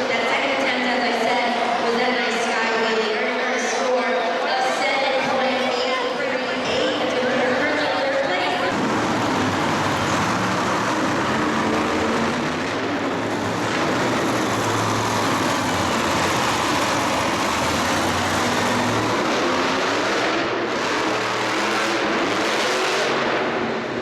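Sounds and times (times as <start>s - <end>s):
motorsport engines running loudly: 8.6s - 24.0s.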